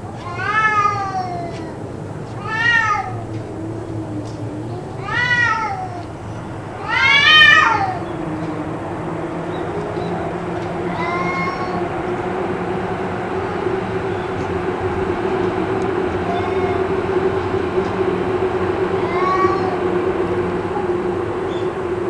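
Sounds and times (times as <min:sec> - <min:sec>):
cats yowling: 0:00.0 - 0:22.0
loud steady hum: 0:00.0 - 0:22.0.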